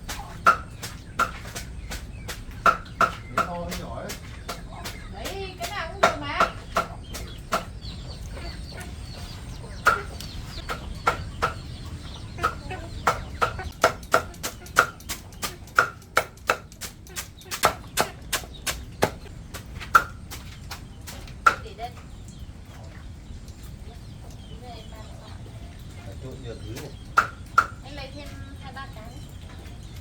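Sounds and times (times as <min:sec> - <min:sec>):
sharp knocks: 0:00.0 - 0:07.8, 0:09.8 - 0:11.7, 0:12.4 - 0:21.7, 0:26.8 - 0:27.8
chickens clucking: 0:00.0 - 0:30.0.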